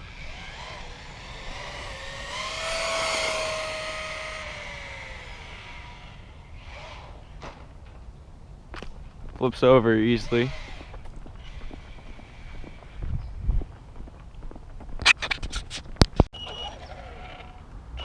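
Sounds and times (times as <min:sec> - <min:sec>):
electric motor and gears whining: 0:00.0 - 0:07.4, 0:10.1 - 0:13.2.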